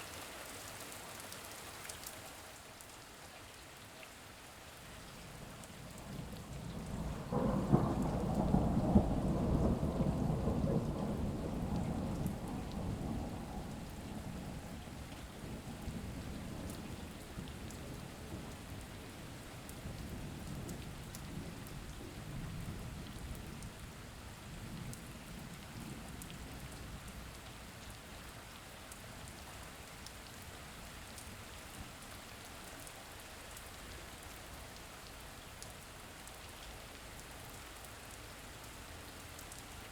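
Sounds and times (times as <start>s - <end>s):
steady rain: 0.0s - 39.9s
thunder rumbling: 6.2s - 18.5s.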